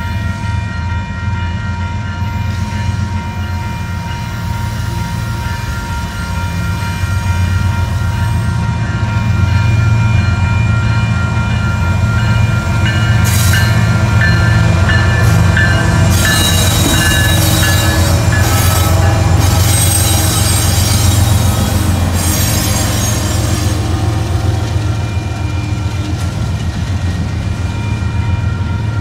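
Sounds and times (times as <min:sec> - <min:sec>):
diesel locomotive engine drone: 0:00.0 - 0:29.0
train wheels on rails: 0:00.0 - 0:29.0
high-pitched wheel squeal: 0:16.1 - 0:23.7.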